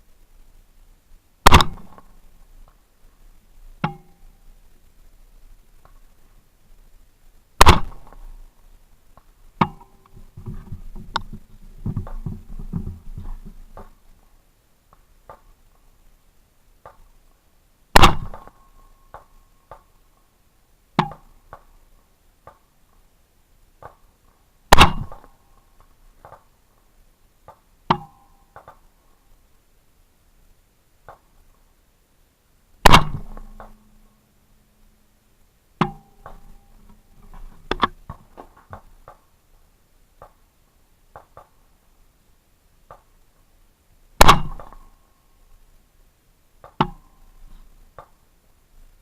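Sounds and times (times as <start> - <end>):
rifle shots: 1.4 - 2.1, 7.6 - 8.2, 17.9 - 18.5, 24.7 - 25.3, 32.8 - 33.8, 44.2 - 44.8
faint sharp cracks: 16.8 - 20.0, 31.0 - 31.6, 32.8 - 34.1, 35.8 - 40.5, 44.2 - 45.0, 46.6 - 48.3.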